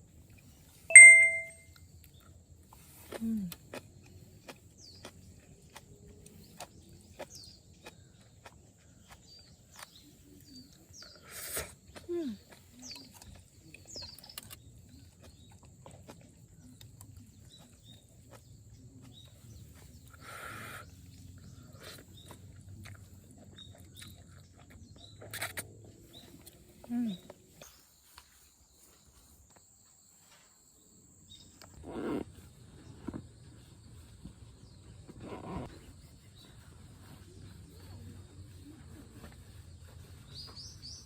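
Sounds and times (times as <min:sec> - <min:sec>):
bird chirps: 0:00.9 - 0:01.6.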